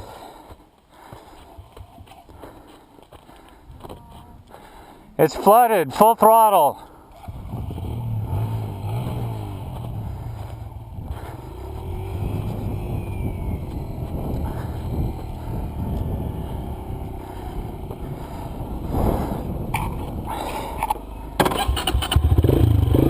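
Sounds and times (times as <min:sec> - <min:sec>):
dirt bike engine running: 0:07.2 - 0:23.0.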